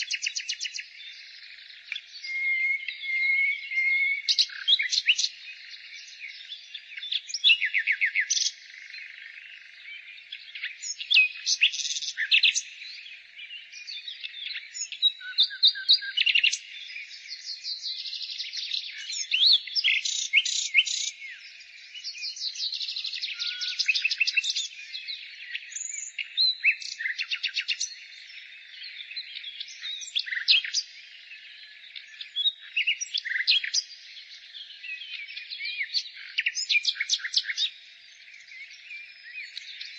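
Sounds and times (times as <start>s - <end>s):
distant bird song: 0.0s - 39.9s
songbirds singing: 0.0s - 39.9s.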